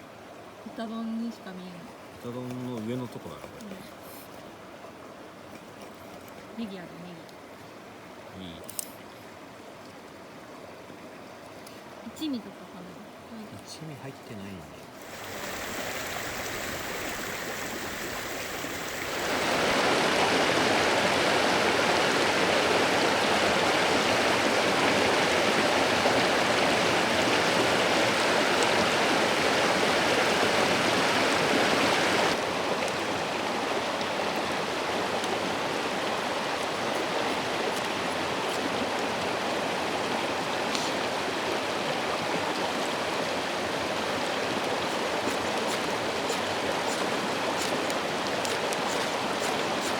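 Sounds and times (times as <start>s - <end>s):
river babbling over stones: 14.9s - 49.9s.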